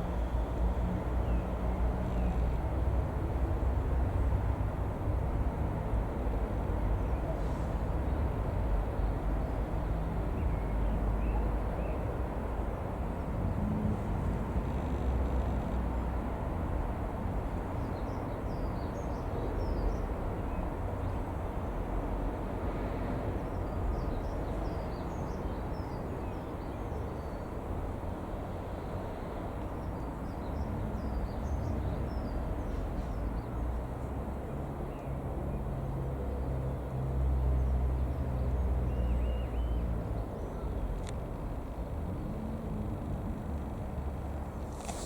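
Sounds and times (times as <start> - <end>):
low outdoor rumble: 12.5 - 16.9.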